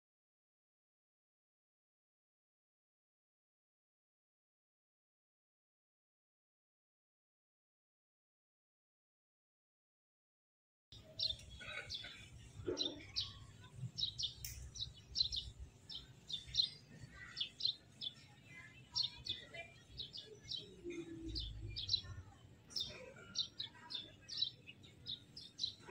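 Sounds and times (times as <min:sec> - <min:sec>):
small birds chirping: 0:10.9 - 0:25.9.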